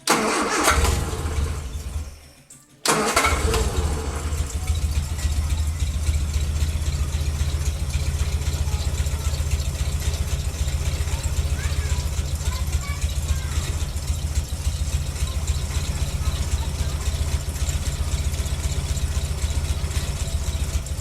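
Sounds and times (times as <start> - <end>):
car engine starting and idling: 0.0 - 2.2, 2.8 - 21.0.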